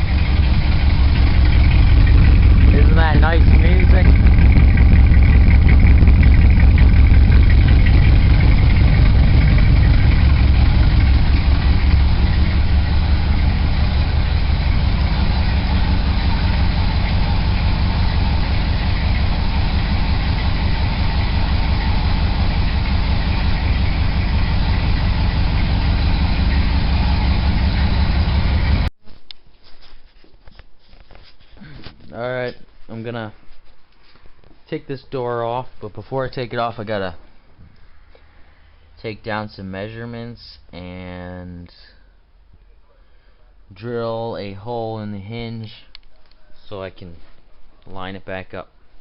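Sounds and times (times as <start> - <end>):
truck engine idling: 0.0 - 28.9.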